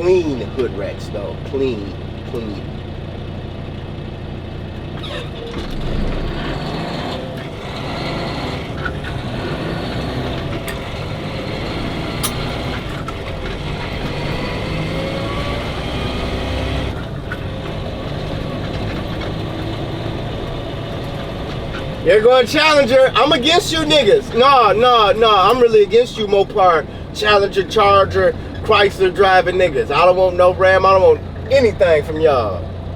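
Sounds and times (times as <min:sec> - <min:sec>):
road noise: 0:00.0 - 0:32.9
truck engine droning: 0:00.0 - 0:32.9.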